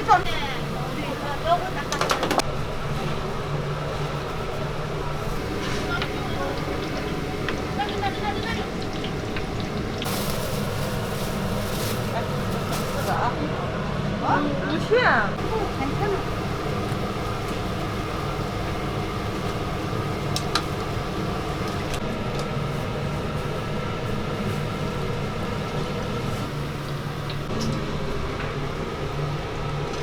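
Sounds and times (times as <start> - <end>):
mechanical hum: 0.0 - 30.0.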